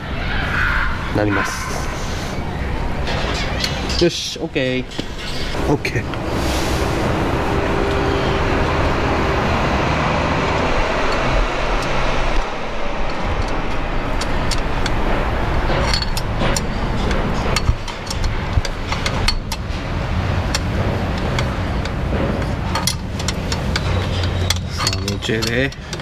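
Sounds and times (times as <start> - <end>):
steady background noise: 0.0 - 26.0
metal tools clicking and clinking: 13.4 - 26.0.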